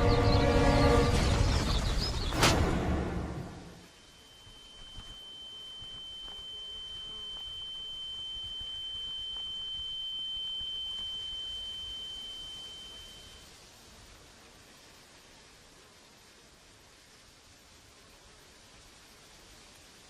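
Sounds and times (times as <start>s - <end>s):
high-pitched pure tone: 3.9s - 13.6s.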